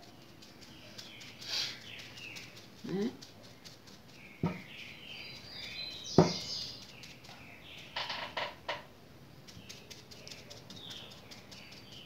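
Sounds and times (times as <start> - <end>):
bird chirping: 0.0 - 8.8, 9.5 - 12.0
sharp knock: 6.2 - 6.4.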